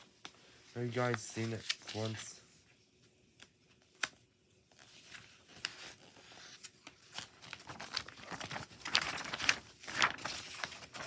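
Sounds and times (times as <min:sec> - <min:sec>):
paper and packaging crinkling: 0:00.9 - 0:02.3, 0:04.8 - 0:11.0.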